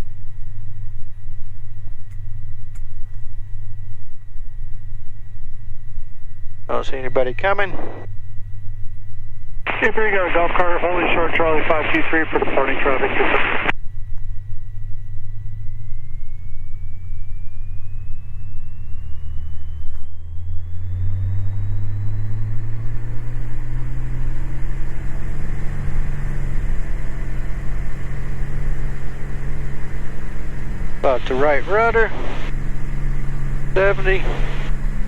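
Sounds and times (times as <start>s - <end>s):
faint thin whine: 0.0s - 35.0s
propeller plane engine revving: 9.7s - 35.0s.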